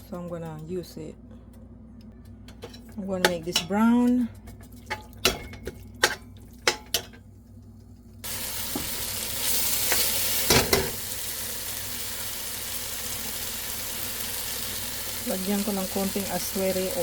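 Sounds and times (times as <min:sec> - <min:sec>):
meat sizzling in a pan: 0:08.2 - 0:17.0.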